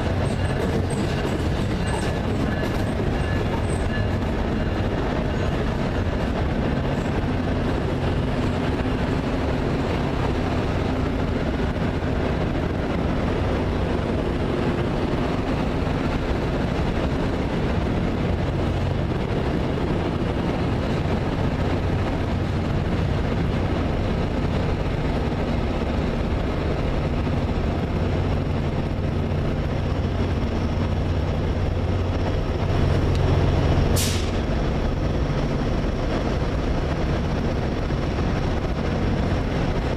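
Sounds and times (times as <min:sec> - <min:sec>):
diesel locomotive engine droning: 0:00.0 - 0:39.9.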